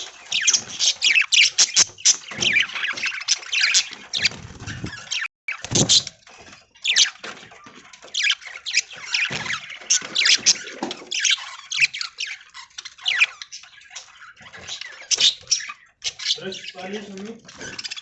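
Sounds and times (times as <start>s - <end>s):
budgerigars chattering: 0.0s - 6.1s, 8.1s - 18.0s.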